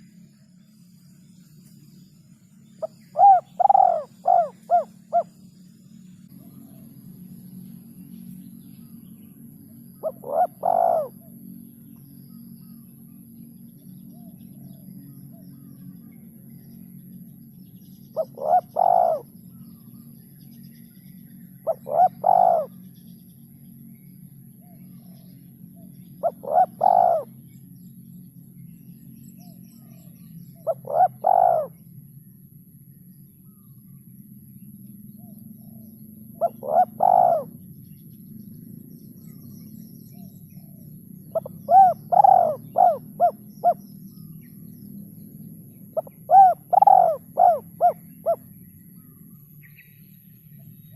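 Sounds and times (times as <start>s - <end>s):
faint low hum: 0.0s - 50.9s
dove cooing: 2.8s - 5.3s, 10.0s - 11.4s, 18.2s - 19.5s, 21.6s - 22.8s, 26.2s - 27.4s, 30.6s - 31.8s, 36.4s - 37.6s, 40.6s - 43.8s, 46.0s - 49.1s.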